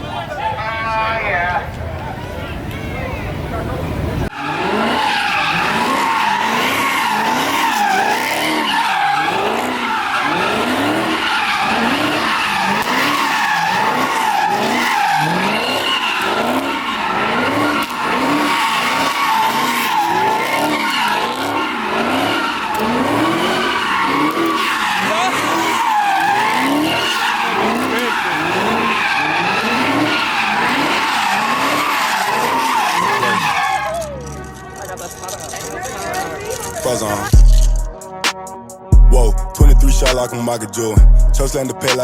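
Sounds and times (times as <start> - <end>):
car engine revving hard: 4.2 - 33.6
tyres squealing: 4.3 - 37.9.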